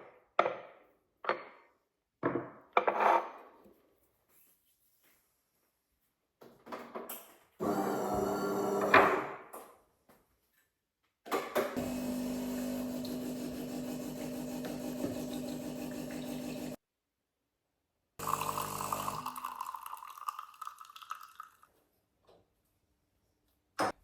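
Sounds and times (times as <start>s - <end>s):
small motor humming: 11.8s - 16.8s, 18.2s - 19.3s.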